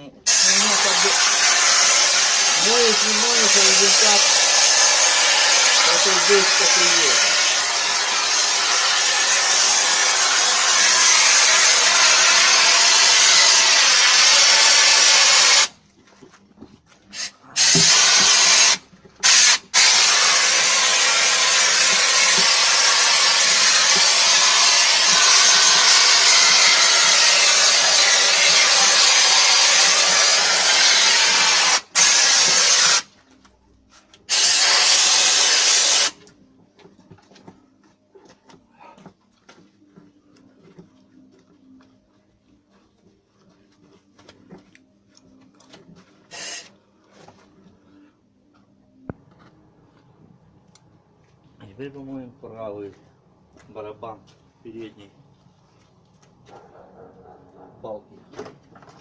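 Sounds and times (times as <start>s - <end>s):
high-pressure water jet hissing: 0.3s - 15.7s, 17.2s - 33.1s, 34.3s - 36.2s, 46.3s - 46.7s.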